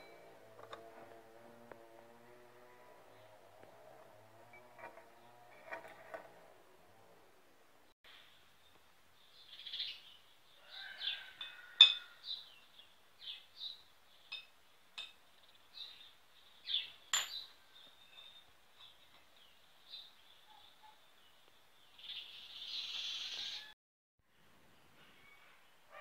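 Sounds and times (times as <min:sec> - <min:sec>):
small birds chirping: 0:08.1 - 0:11.6, 0:12.2 - 0:23.7.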